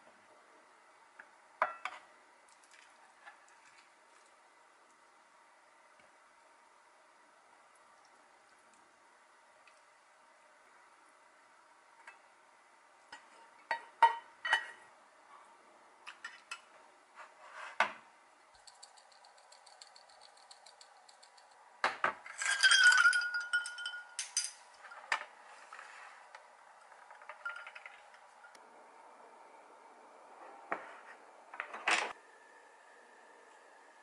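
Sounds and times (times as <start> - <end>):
ice cubes clinking in glass: 22.3 - 24.6.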